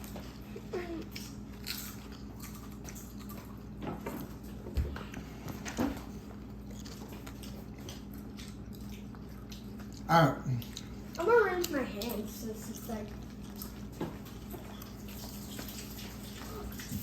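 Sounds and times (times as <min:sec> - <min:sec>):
crunching potato chips: 0:01.0 - 0:03.7, 0:06.6 - 0:16.9.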